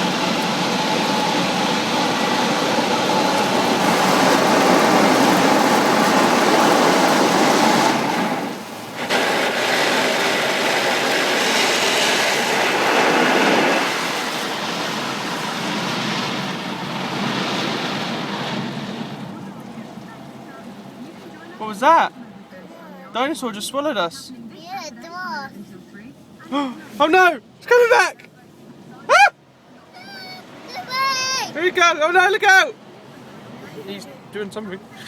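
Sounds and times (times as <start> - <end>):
car wash water spray and machinery: 0.0 - 35.0.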